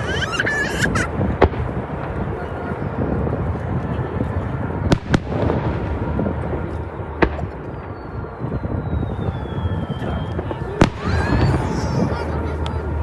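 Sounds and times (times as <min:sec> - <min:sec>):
fireworks exploding: 0:00.0 - 0:13.0
sharp firework bangs: 0:01.1 - 0:02.4, 0:04.8 - 0:12.2.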